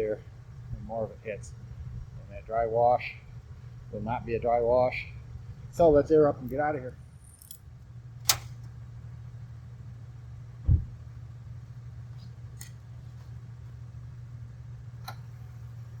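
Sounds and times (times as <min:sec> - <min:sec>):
car engine idling: 0:00.0 - 0:16.0
sharp click: 0:08.2 - 0:08.7
heavy thump: 0:10.6 - 0:11.0.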